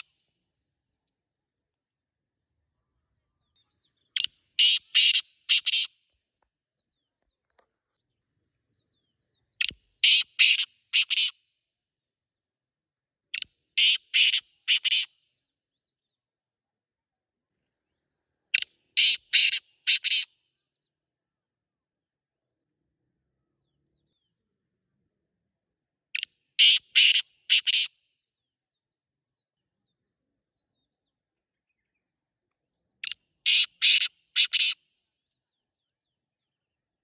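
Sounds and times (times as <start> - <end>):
francolin calling harshly: 3.6 - 6.0, 9.6 - 11.4, 13.3 - 15.2, 18.5 - 20.3, 26.2 - 28.0, 33.0 - 34.8.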